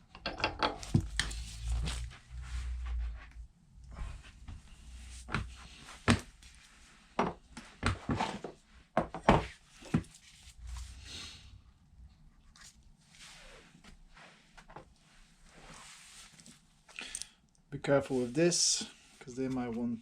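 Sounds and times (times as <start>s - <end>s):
metal parts knocking and clicking: 0.1s - 1.1s.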